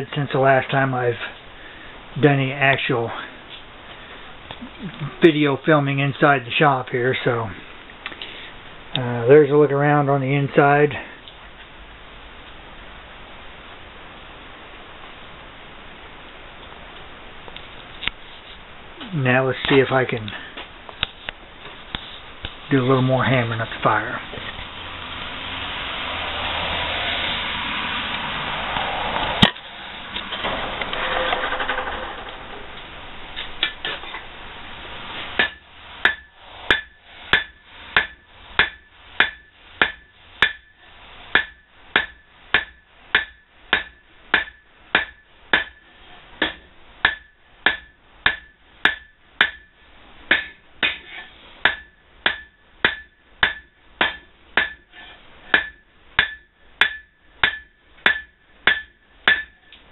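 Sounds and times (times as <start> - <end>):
steady rushing noise: 10.8 - 43.8
hammer striking steel on anvil: 35.4 - 59.8.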